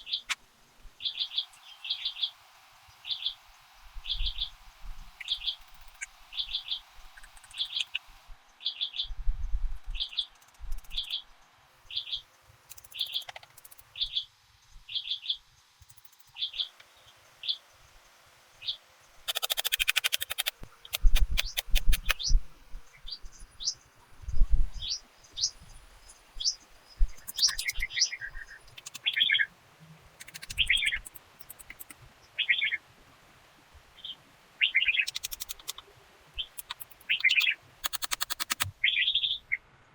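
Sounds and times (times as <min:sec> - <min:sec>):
quick run of clicks: 0:19.3 - 0:22.3, 0:28.7 - 0:29.3, 0:30.2 - 0:32.0, 0:35.1 - 0:35.8, 0:36.5 - 0:38.7
bird calling: 0:24.8 - 0:29.5, 0:30.2 - 0:32.8, 0:34.0 - 0:39.6
bird whistles and chirps: 0:26.4 - 0:29.5.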